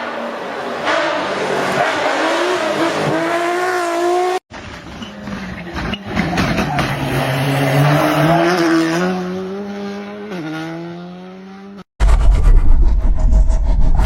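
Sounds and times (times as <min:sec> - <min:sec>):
rally car engine accelerating: 0:01.2 - 0:11.8
loud low rumble: 0:12.0 - 0:14.0.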